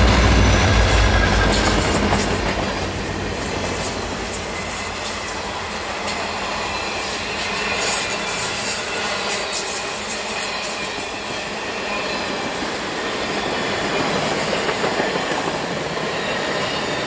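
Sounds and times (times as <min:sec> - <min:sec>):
low locomotive engine: 0:00.0 - 0:17.0
steel wheels rushing on rail: 0:00.0 - 0:17.0.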